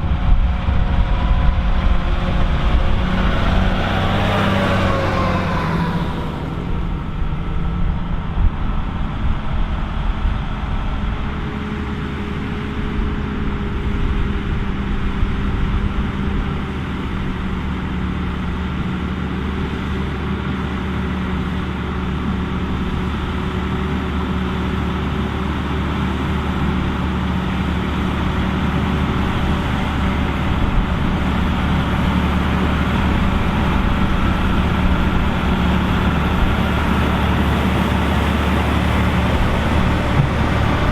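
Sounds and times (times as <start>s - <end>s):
tractor diesel engine drone: 0.0s - 40.9s.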